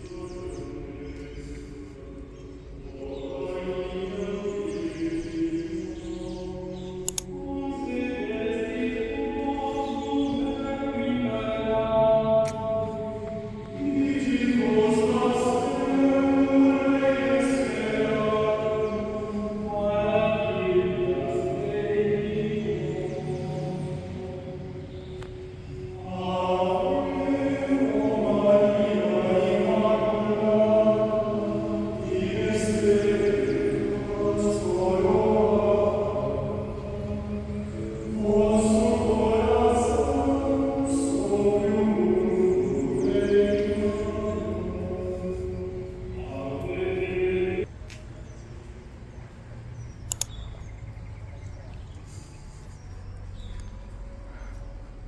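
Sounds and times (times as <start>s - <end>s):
choir singing long held notes: 0.0s - 48.4s
choral chanting: 0.0s - 48.4s
low background noise: 0.0s - 55.0s
quick clicks: 7.0s - 7.4s, 50.0s - 50.5s.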